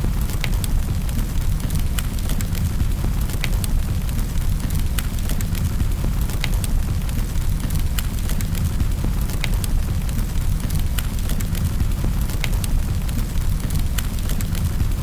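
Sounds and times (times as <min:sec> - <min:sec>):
fire popping and crackling: 0:00.0 - 0:15.0
low rumble of burning: 0:00.0 - 0:15.0.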